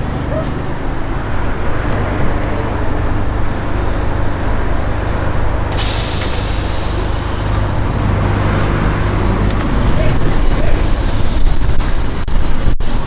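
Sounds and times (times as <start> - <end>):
tram rumbling: 0.0 - 13.0
air brakes hissing: 5.7 - 9.4.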